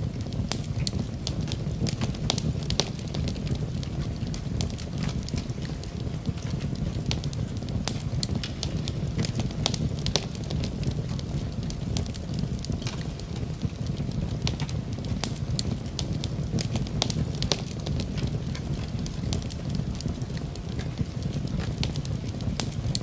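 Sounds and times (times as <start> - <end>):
gentle rain hissing: 0.0 - 23.0
wood fire crackling: 0.0 - 23.0.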